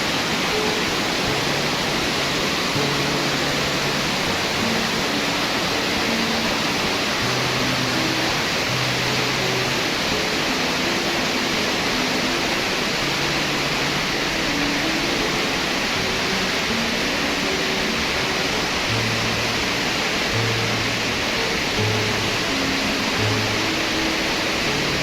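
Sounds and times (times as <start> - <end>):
faint slow background music: 0.0 - 25.0
waterfall rushing: 0.0 - 25.0.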